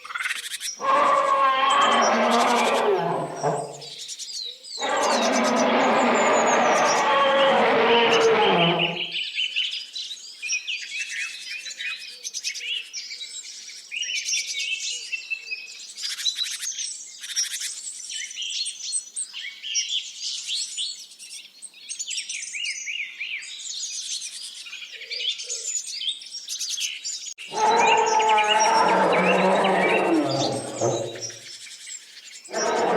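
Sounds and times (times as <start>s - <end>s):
small birds chirping and twittering: 0.0s - 32.9s
loud low-pitched animal sound: 0.8s - 3.9s, 4.8s - 9.2s, 27.4s - 31.4s, 32.5s - 32.9s.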